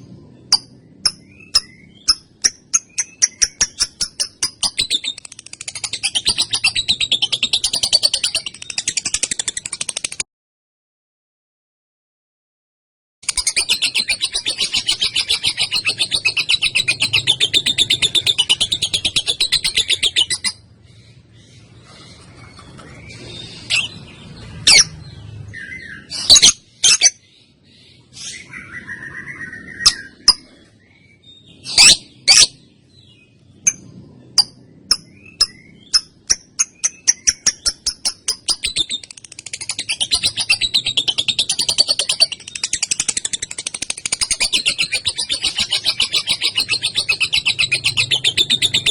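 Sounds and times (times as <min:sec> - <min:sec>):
lovebird chattering trill: 0:00.5 - 0:10.2, 0:13.2 - 0:20.6, 0:26.2 - 0:27.2, 0:33.6 - 0:48.9.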